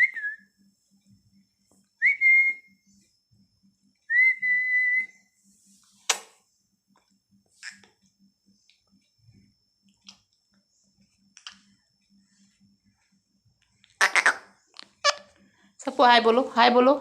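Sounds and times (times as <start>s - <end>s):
rising whistles: 4.1s - 5.3s.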